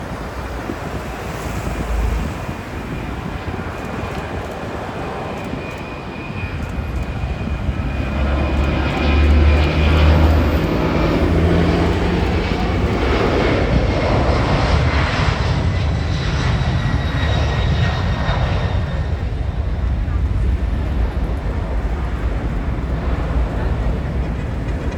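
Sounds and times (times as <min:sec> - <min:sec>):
engine fan whine: 0:00.0 - 0:17.8
jet engine roar: 0:00.0 - 0:24.9.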